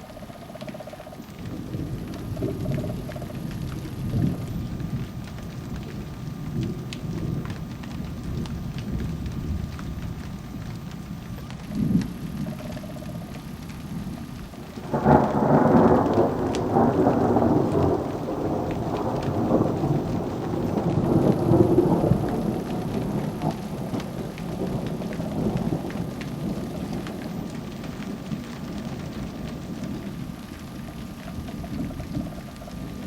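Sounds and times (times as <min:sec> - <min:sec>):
falling rain: 0:00.0 - 0:33.0
thunder rumbling: 0:00.0 - 0:33.0.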